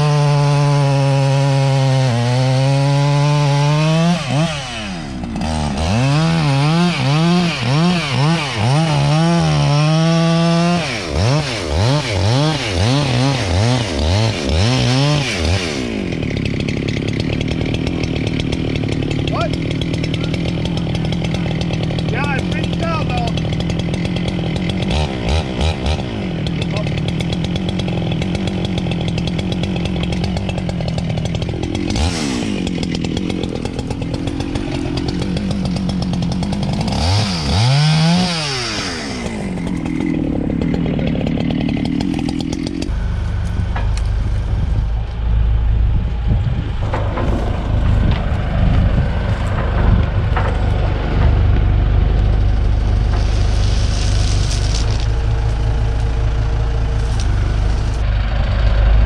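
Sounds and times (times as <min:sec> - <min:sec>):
chainsaw revving: 0:00.0 - 0:45.3, 0:46.8 - 0:59.0
low engine rumble: 0:39.3 - 0:59.0.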